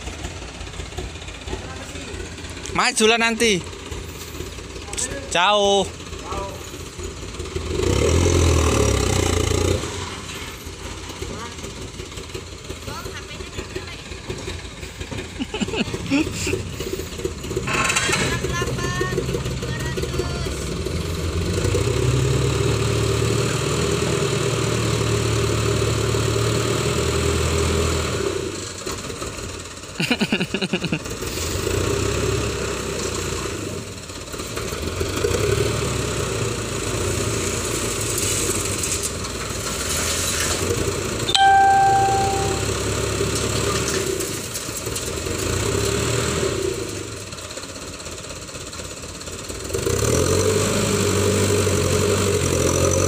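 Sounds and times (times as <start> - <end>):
diesel truck engine running: 0.0 - 39.8, 40.6 - 53.0
soil sliding out: 37.4 - 40.8
short beep: 41.3 - 42.9.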